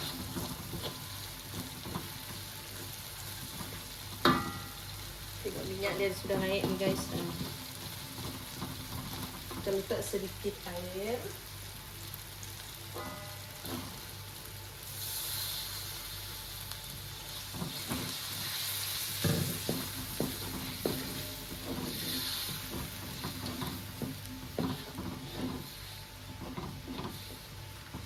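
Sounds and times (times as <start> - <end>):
spatula scraping a pan: 0.0 - 4.4, 17.4 - 28.0
paste sizzling in oil: 0.0 - 28.0.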